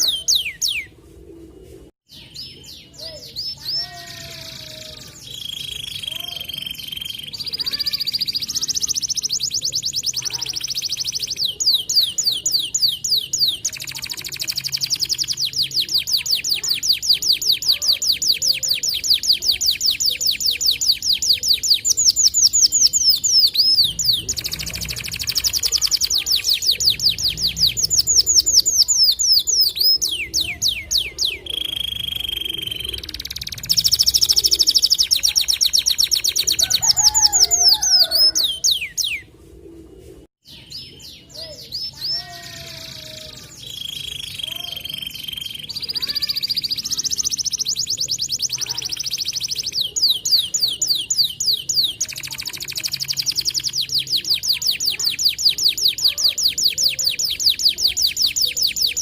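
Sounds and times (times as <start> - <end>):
canary singing rapid trills: 0.0 - 0.9, 2.2 - 39.2, 40.5 - 59.0.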